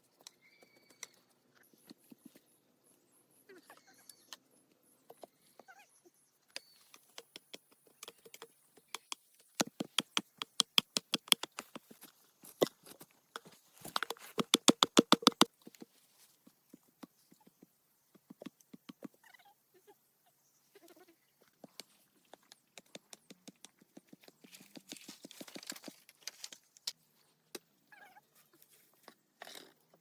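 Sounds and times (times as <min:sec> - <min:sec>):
sharp knocks: 0:14.4 - 0:15.5.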